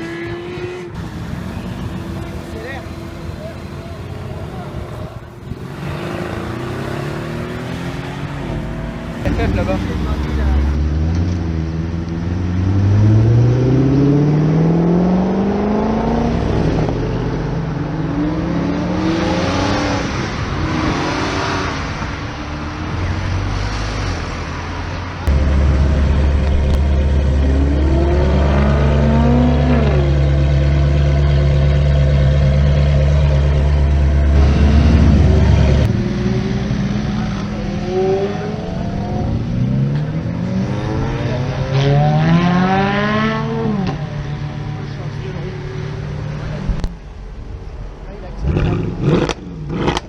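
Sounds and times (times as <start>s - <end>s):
car engines revving: 0.0s - 50.0s
steady low drone: 25.3s - 29.7s.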